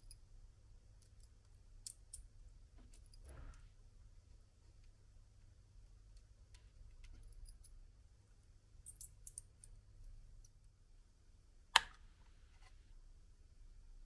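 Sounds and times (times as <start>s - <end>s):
faint small clicks: 6.1s - 7.7s.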